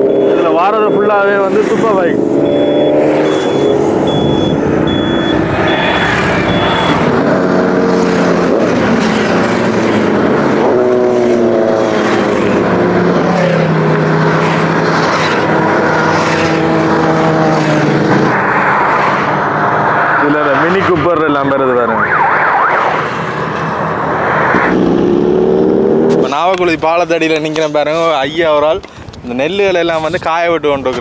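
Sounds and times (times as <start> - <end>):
motorbike and car engines passing: 0.0 - 27.5
repeating high beep: 2.4 - 7.1.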